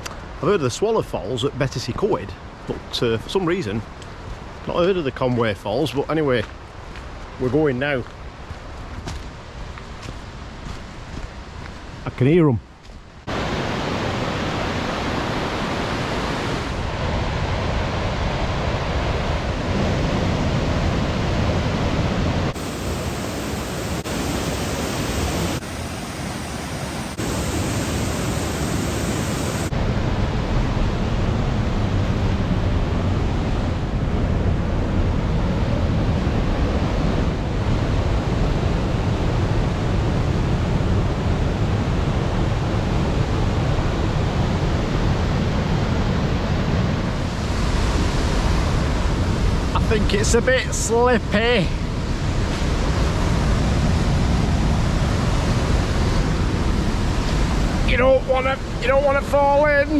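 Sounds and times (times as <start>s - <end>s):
waterfall rushing: 22.5s - 29.7s.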